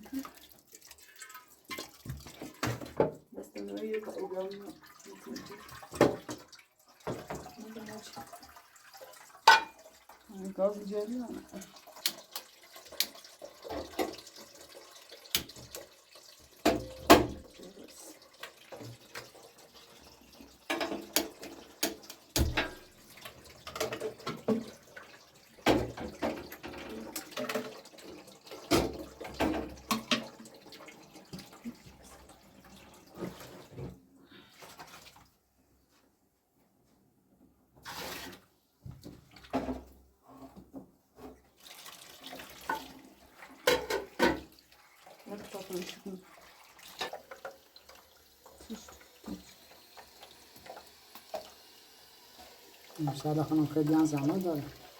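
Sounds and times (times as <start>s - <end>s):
water splashing and trickling: 0.0s - 35.4s, 37.8s - 54.9s
dishes clinking and knocking: 9.4s - 9.8s, 16.6s - 17.4s, 20.6s - 22.9s, 43.6s - 44.5s.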